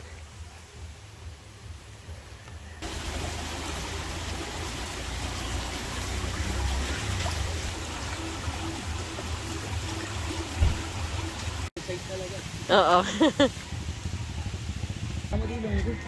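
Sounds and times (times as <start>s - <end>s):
river water rushing: 2.8s - 13.4s.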